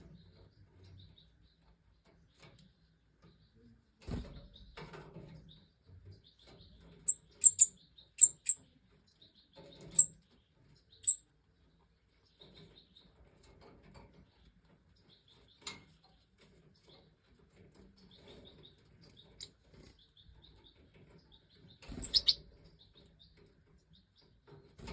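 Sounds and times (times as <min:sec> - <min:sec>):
soft high bird twittering: 0:07.0 - 0:10.2, 0:10.9 - 0:11.2, 0:21.6 - 0:22.4
sharp high bird chirps: 0:07.1 - 0:08.6, 0:09.8 - 0:10.1, 0:11.0 - 0:11.2, 0:21.9 - 0:22.4.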